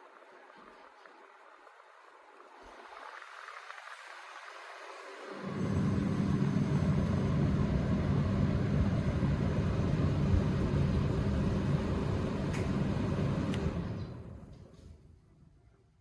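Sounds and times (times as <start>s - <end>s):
electric fan running: 4.7s - 14.6s.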